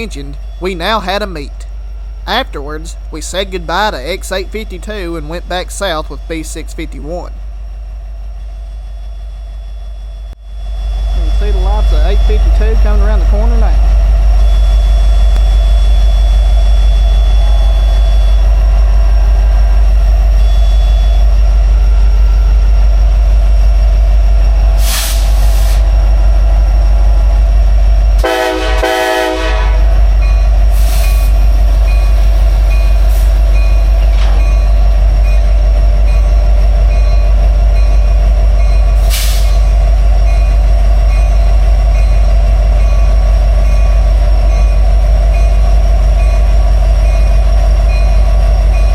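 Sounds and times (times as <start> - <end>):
diesel locomotives rumbling: 0.0 - 48.9
train horn blast: 28.2 - 29.9.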